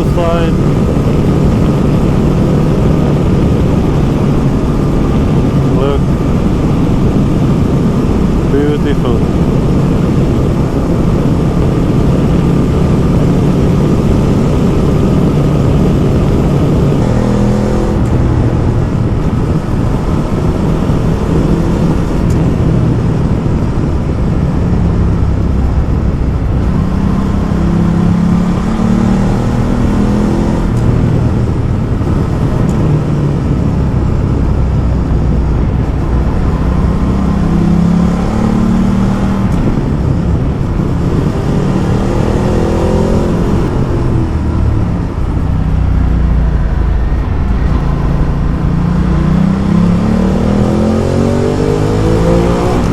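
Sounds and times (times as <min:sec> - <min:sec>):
motorcycle engine running: 0:00.0 - 0:52.9
wind rushing: 0:00.0 - 0:52.9.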